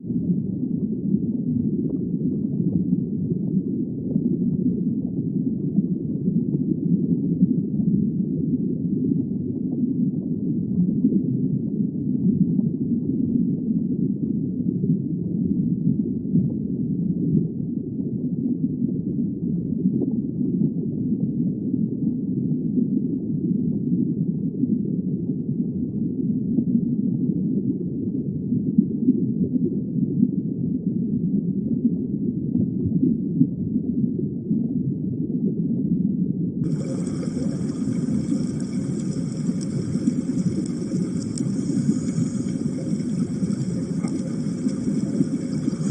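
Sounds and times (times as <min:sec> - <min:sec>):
low underwater rush: 0:36.6 - 0:45.9.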